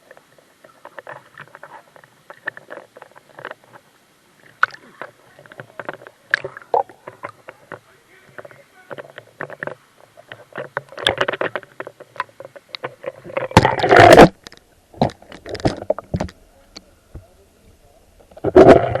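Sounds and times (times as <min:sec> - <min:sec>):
water splashing in a stream: 0:03.4 - 0:07.6.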